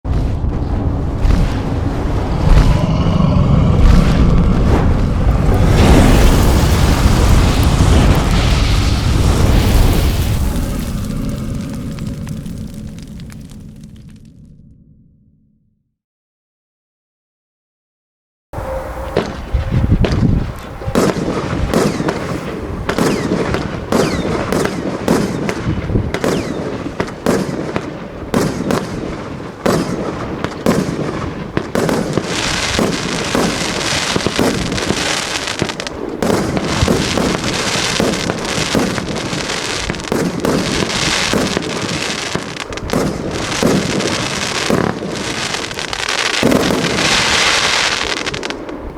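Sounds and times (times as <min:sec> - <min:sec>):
fireworks aerial bursts: 0:00.1 - 0:13.8, 0:18.6 - 0:48.9
fireworks crackle: 0:00.1 - 0:14.4, 0:19.0 - 0:48.9
fireworks launch thumps: 0:29.6 - 0:48.5.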